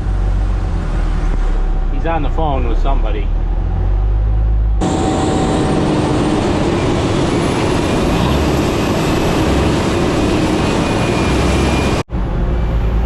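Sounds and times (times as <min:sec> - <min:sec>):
engine running: 0:00.0 - 0:13.0
heavy farm machinery running: 0:04.7 - 0:13.0.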